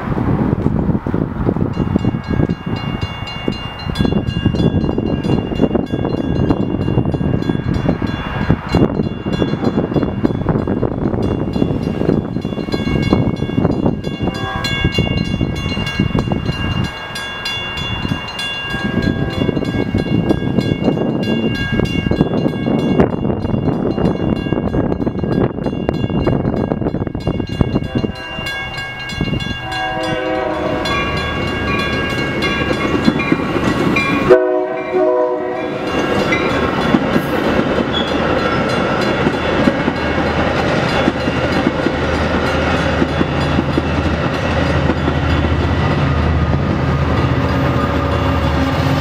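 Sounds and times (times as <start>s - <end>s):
railroad crossing bell ringing: 1.6s - 49.0s
train horn blowing: 14.1s - 15.2s, 18.7s - 19.8s, 27.8s - 28.8s, 29.5s - 31.4s, 34.1s - 36.0s
train wheels clattering over rails: 31.1s - 34.3s, 35.7s - 49.0s.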